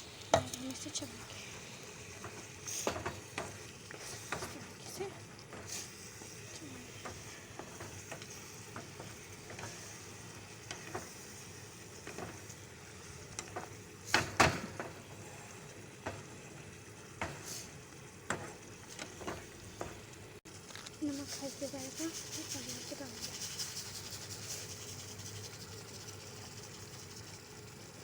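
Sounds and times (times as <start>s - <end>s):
chicken sizzling in a pan: 0.0s - 28.0s
utensil scraping a pan: 2.1s - 16.3s.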